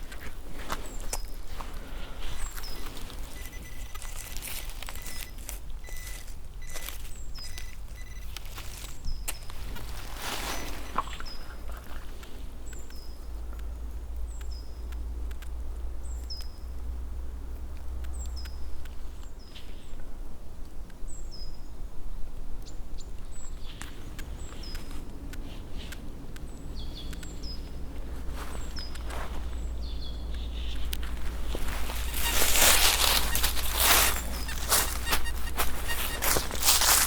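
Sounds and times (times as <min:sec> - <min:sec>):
faint clicks and rustles: 0:00.0 - 0:16.5, 0:23.6 - 0:37.0
songbird high call: 0:29.6 - 0:37.0.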